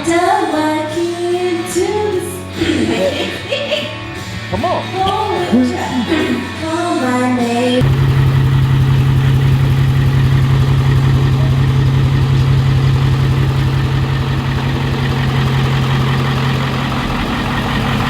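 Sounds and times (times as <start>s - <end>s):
diesel truck engine idling: 7.8s - 18.0s.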